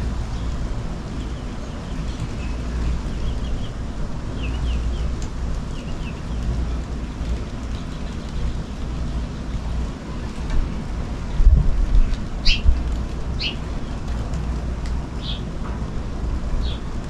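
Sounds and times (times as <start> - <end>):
small birds chirping: 0.3 - 9.7, 12.0 - 14.1, 15.2 - 15.5, 16.6 - 17.0.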